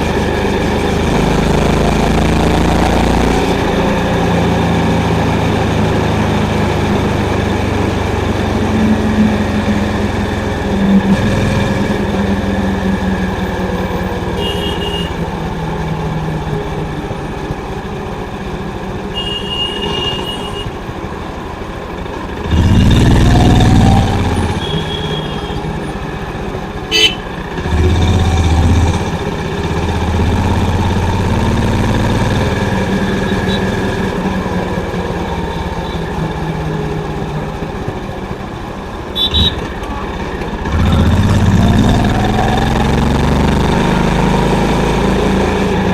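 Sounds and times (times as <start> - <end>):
motorcycle engine running: 0.0 - 45.9
horn beeping: 8.5 - 15.4, 19.1 - 20.9, 22.4 - 26.1, 26.8 - 30.3, 32.9 - 34.2, 39.1 - 40.0.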